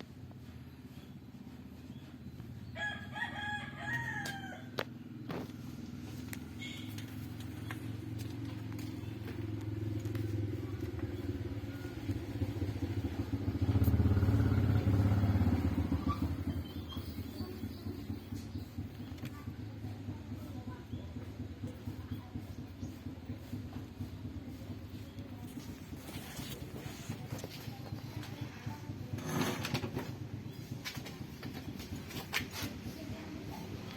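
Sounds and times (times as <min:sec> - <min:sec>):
rooster crowing: 0:02.8 - 0:04.8.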